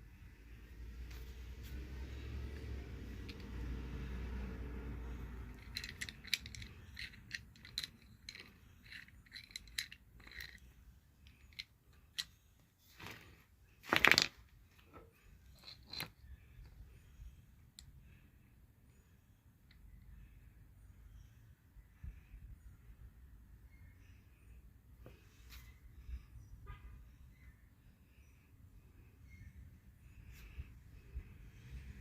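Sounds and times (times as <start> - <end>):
metallic clicks of tools handled: 3.2 - 3.6, 5.5 - 12.4, 15.5 - 16.2.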